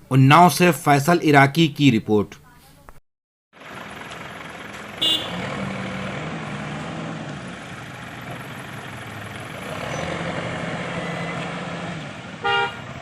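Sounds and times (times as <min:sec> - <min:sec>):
heavy engine running: 0:03.6 - 0:13.0.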